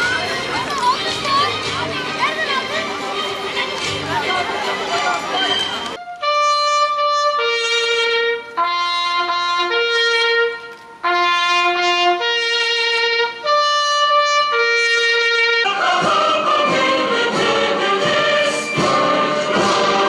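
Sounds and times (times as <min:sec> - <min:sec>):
brass music with trumpet melody: 0:05.4 - 0:20.0.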